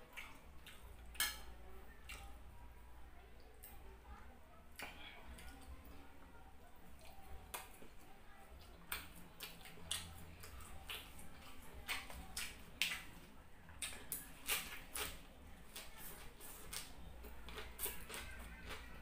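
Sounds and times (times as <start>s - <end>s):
lettuce crunching while chewed: 8.7s - 19.0s.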